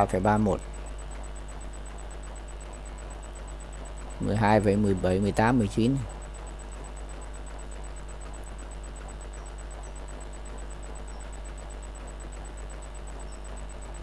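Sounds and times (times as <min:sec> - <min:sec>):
faint high-pitched whine: 0:00.0 - 0:14.0
low electrical hum: 0:00.0 - 0:14.0.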